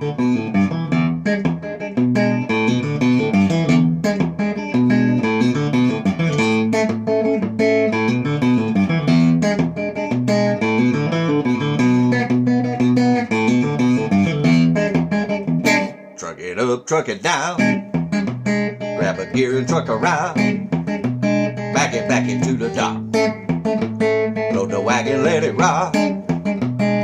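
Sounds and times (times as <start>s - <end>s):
picked guitar notes: 0.0s - 27.0s
bass line: 15.6s - 26.5s.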